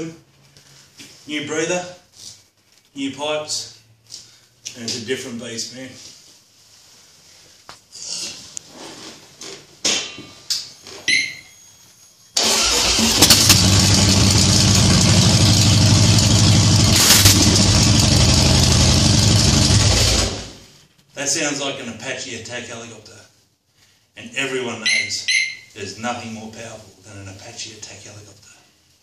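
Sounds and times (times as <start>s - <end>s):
motorcycle engine running loud: 13.2s - 20.6s.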